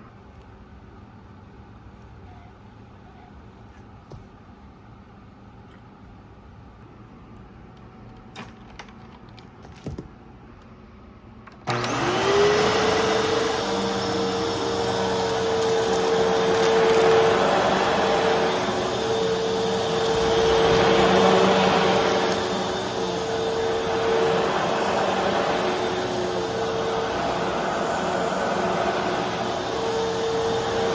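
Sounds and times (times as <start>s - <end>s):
vacuum cleaner running: 11.6s - 30.9s.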